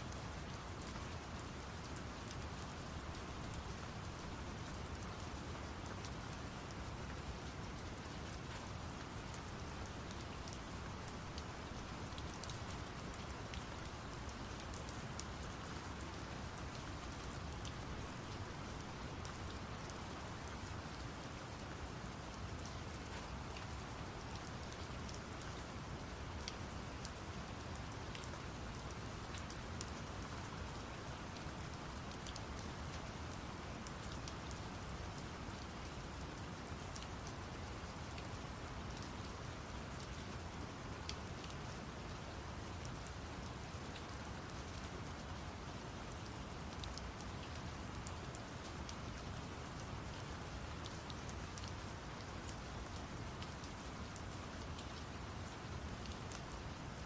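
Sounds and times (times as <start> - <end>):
steady rain hiss: 0.0 - 57.0
raindrop ticks: 46.8 - 49.1, 50.7 - 56.3.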